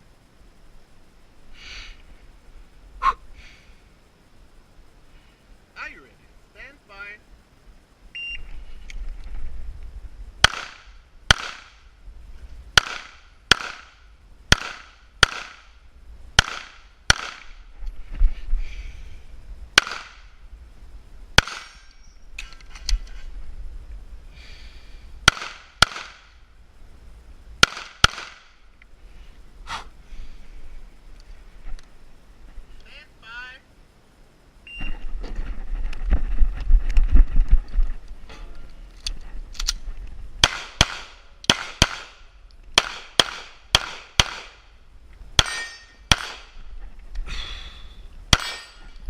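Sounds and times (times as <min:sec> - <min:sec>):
short beep: 0:08.2 - 0:08.5
pistol shots in quick pairs: 0:10.4 - 0:11.8, 0:12.8 - 0:15.7, 0:16.4 - 0:17.6, 0:19.8 - 0:20.2, 0:21.4 - 0:21.7, 0:25.2 - 0:26.3, 0:27.6 - 0:28.5, 0:40.4 - 0:42.2, 0:42.8 - 0:44.6, 0:45.4 - 0:46.5.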